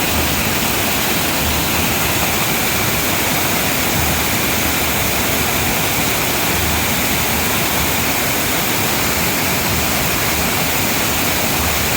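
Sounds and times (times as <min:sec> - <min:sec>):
waterfall pouring: 0:00.0 - 0:11.9.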